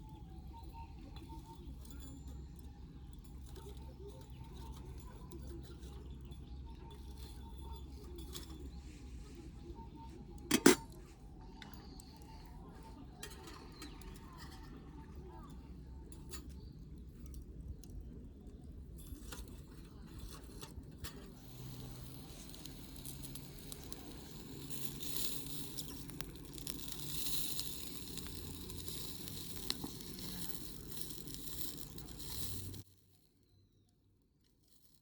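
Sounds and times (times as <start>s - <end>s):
campfire crackling and popping: 10.5s - 32.9s
hissing sizzle: 21.3s - 32.9s.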